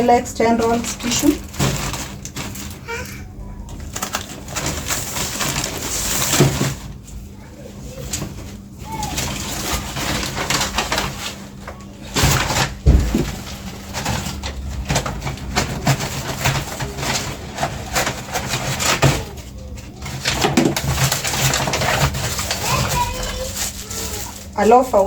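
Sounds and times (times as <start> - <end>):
plastic packaging crinkling: 0.0 - 25.0
heavy thump of item set down: 12.8 - 13.4.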